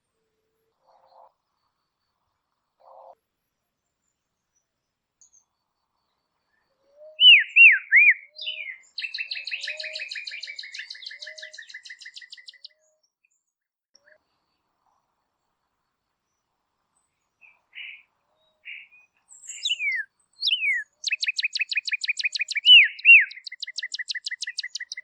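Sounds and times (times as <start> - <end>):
songbird trill: 3.8 - 14.2, 15.8 - 25.0
songbird whistles: 6.9 - 12.8, 18.7 - 25.0.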